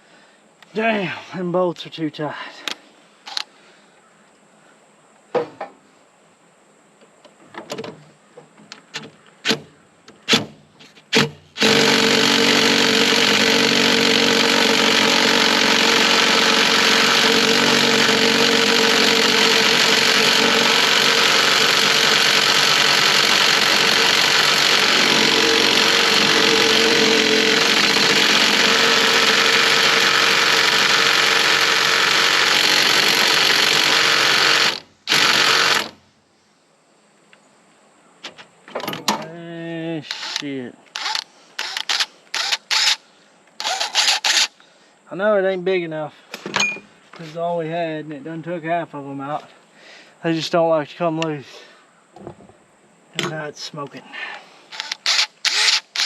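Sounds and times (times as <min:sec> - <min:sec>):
metal tools clinking: 0:46.5 - 0:46.9.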